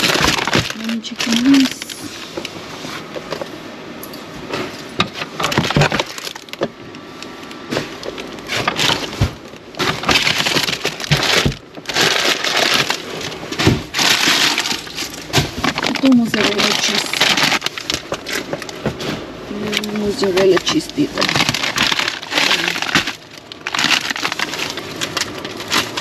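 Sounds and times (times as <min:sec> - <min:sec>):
plastic wrappers crackling: 0:00.0 - 0:03.5, 0:05.0 - 0:26.0.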